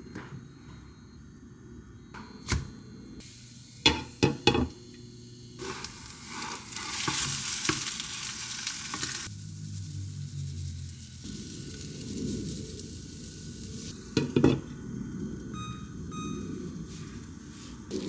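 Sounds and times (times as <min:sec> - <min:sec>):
food sizzling in a frying pan: 0:03.2 - 0:05.0, 0:05.6 - 0:14.6
cookware knocks: 0:03.9 - 0:04.7, 0:14.2 - 0:14.6.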